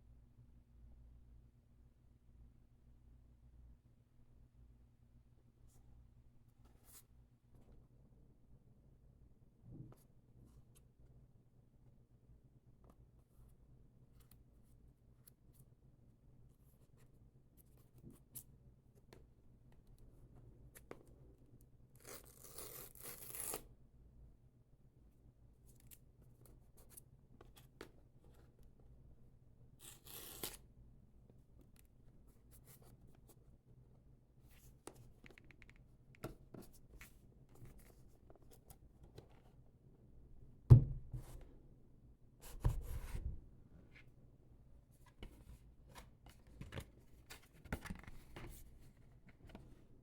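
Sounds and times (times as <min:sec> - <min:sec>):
hands handling a cardboard box: 0:45.0 - 0:49.8.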